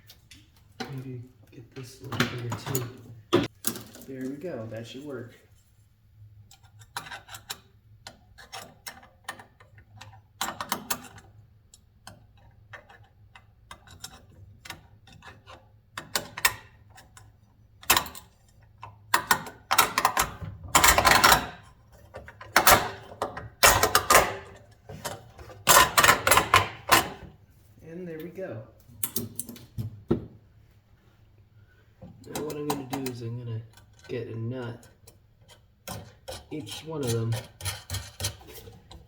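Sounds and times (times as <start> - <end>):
metal parts and screws rattling: 2.1 - 4.6, 12.2 - 27.4.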